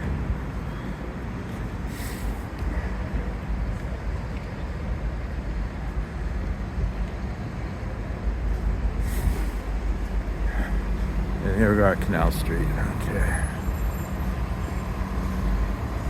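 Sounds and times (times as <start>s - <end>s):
city street traffic rumble: 0.0s - 16.0s
short hisses: 9.0s - 9.7s.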